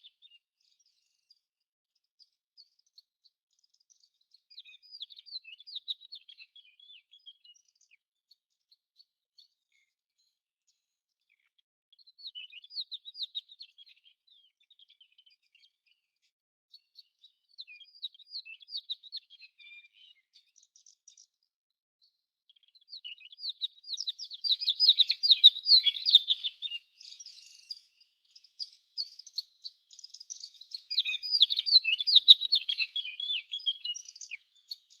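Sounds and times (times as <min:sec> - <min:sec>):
songbird twittering: 0:22.6 - 0:35.0.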